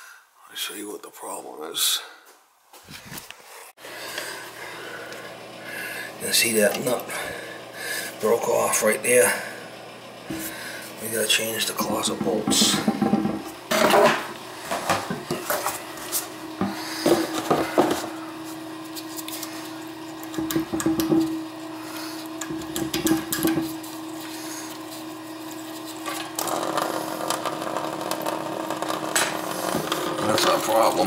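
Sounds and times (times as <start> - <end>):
steady hum: 3.8 - 31.0
hand tools knocking and scraping: 10.3 - 10.5, 11.8 - 18.2, 20.3 - 21.4, 22.4 - 23.8.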